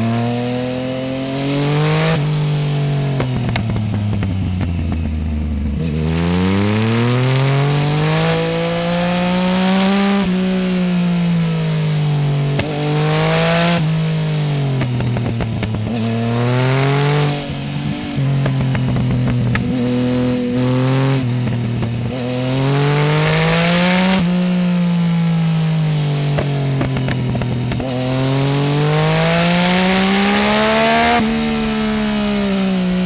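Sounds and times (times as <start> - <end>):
motorcycle engine revving: 0.0 - 33.0
exhaust crackles: 26.0 - 33.0.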